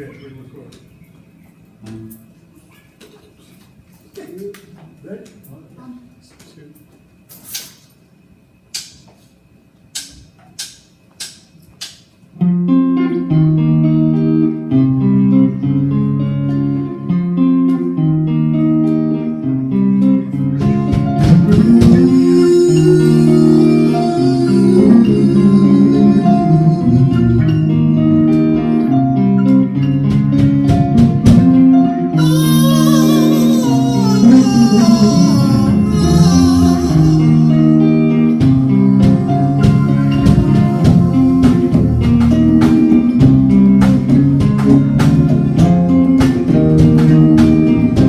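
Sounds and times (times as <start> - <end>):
strummed guitar chords: 12.4 - 48.0
bass line: 19.5 - 48.0
percussion: 20.6 - 25.3, 38.4 - 48.0.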